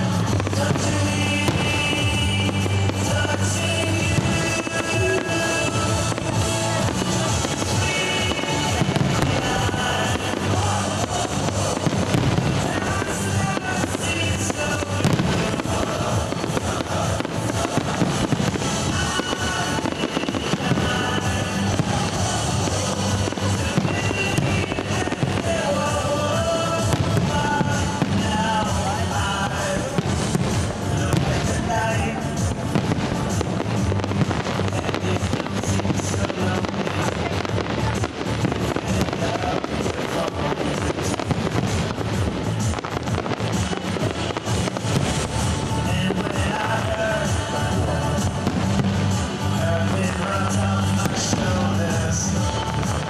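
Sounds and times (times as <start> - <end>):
fireworks bursting and crackling: 0.0 - 53.0
music: 0.0 - 53.0.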